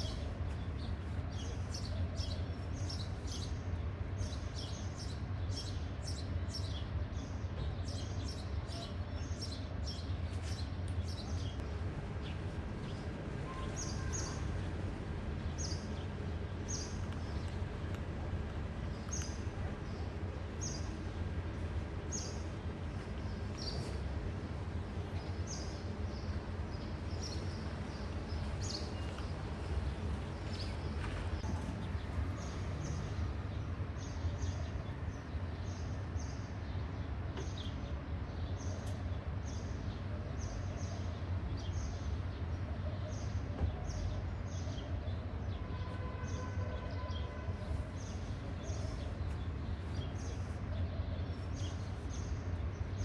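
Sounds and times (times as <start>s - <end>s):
small birds chirping: 4.2s - 34.9s, 47.1s - 53.0s
low outdoor rumble: 8.6s - 36.6s, 47.2s - 53.0s.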